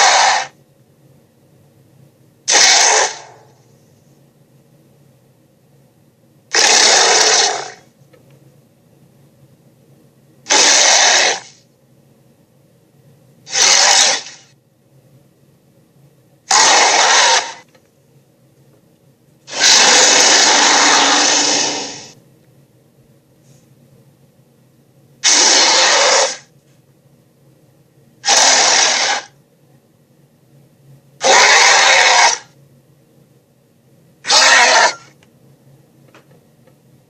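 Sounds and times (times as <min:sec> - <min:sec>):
cartoon creature roars: 0:00.0 - 0:00.6, 0:02.5 - 0:03.4, 0:06.5 - 0:07.8, 0:10.5 - 0:11.6, 0:13.5 - 0:14.4, 0:16.5 - 0:17.6, 0:19.5 - 0:22.2, 0:25.2 - 0:26.5, 0:28.2 - 0:29.3, 0:31.2 - 0:32.5, 0:34.3 - 0:35.1.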